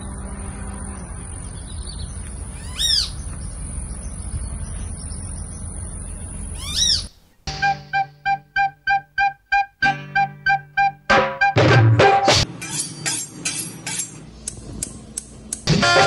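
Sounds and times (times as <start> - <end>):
low outdoor rumble: 0.0 - 7.4
bird calling: 0.9 - 7.4.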